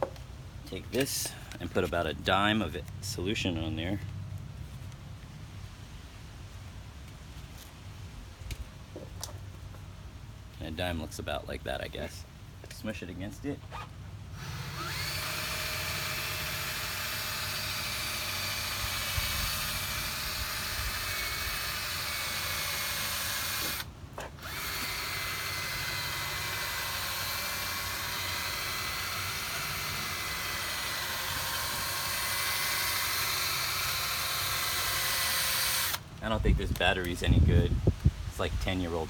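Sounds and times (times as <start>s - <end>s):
cordless drill motor whine: 13.7s - 36.0s.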